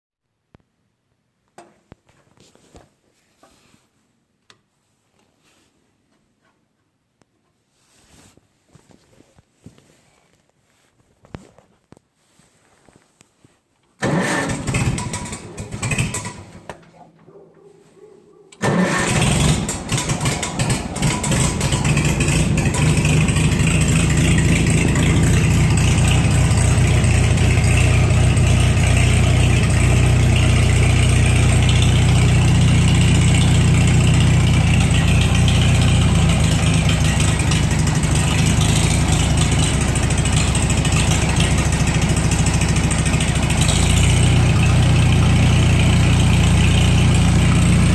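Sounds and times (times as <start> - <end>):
tractor engine running steadily: 14.0 - 16.9, 18.6 - 47.9
tractor engine cranking and starting: 14.0 - 17.3, 18.5 - 47.9.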